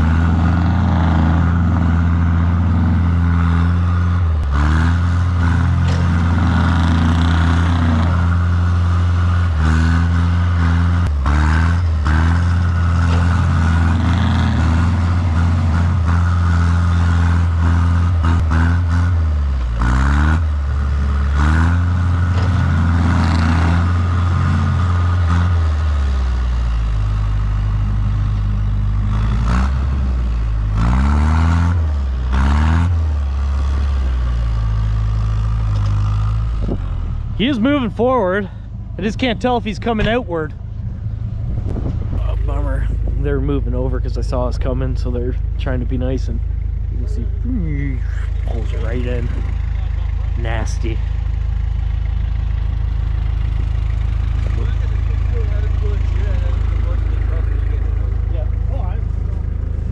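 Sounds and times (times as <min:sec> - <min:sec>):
vehicle engine working under load: 0:00.0 - 0:59.9
knocks and clatter: 0:04.3 - 0:20.4, 0:21.1 - 0:25.7.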